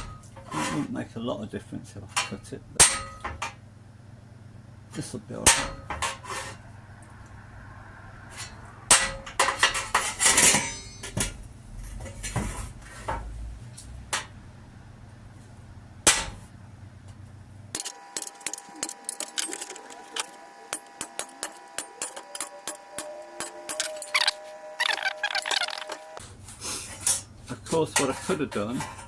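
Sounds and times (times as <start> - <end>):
hand tools clattering on sheet steel: 2.1 - 3.6, 5.0 - 6.6, 8.4 - 11.4, 26.9 - 29.0.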